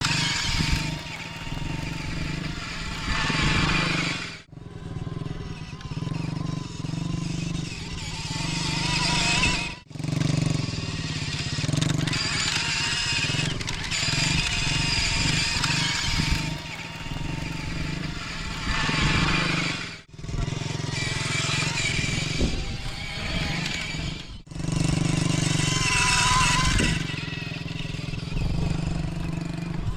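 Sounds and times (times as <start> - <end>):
off-road motorbike engine: 0.0 - 29.9.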